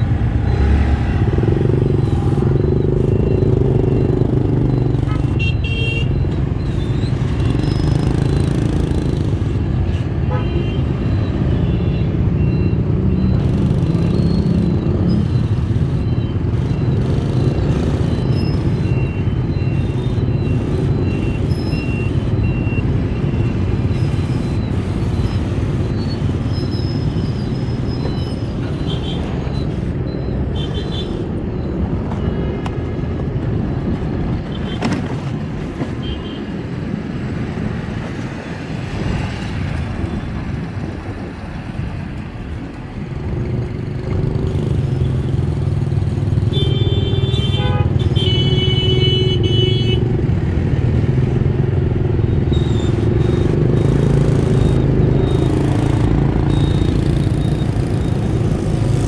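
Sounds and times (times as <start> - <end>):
street traffic engine hum: 0.0 - 59.0
vehicle horn toots: 5.1 - 6.2, 10.2 - 11.0, 46.5 - 50.0.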